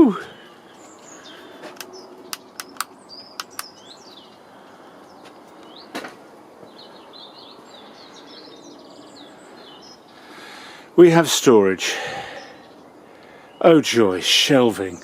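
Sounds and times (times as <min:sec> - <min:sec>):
small birds singing and chirping: 0:00.0 - 0:15.0
sharp clicks: 0:01.7 - 0:03.8.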